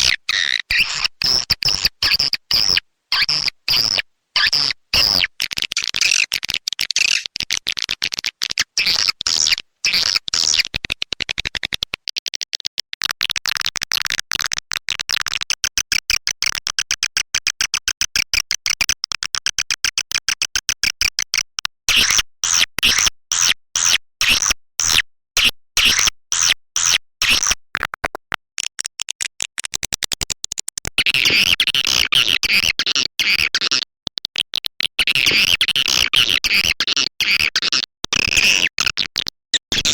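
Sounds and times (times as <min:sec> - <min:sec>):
swiftlet chirps and clicks: 0:00.0 - 0:09.6.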